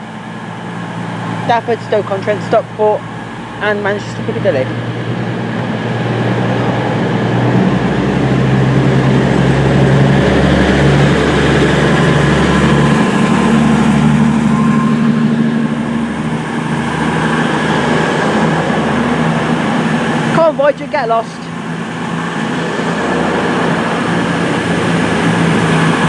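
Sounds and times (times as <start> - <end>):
train diesel engine drone: 0.0 - 26.0.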